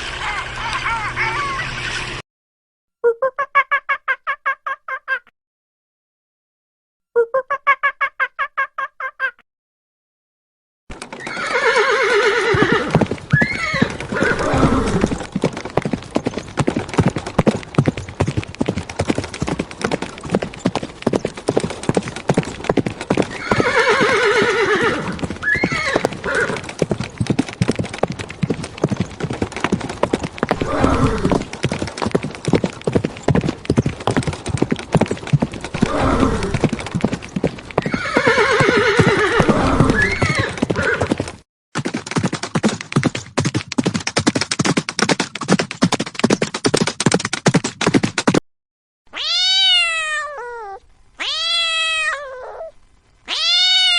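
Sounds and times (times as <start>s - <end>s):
hooves clip-clopping: 10.9s - 48.4s
horse neighing: 11.2s - 15.2s, 23.3s - 26.7s, 30.5s - 31.5s, 35.8s - 36.7s, 37.8s - 41.1s, 53.3s - 53.9s.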